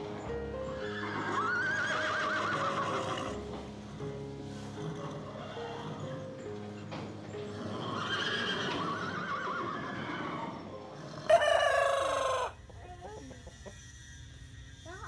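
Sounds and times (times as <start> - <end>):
rooster crowing: 11.3 - 12.6.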